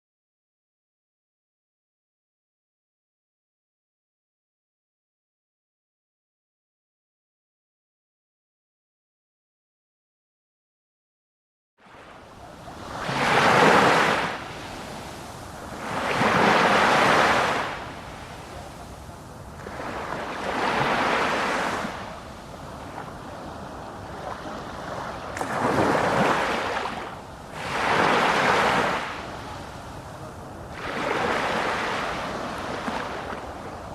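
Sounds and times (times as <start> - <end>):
ocean waves breaking: 11.8 - 33.9.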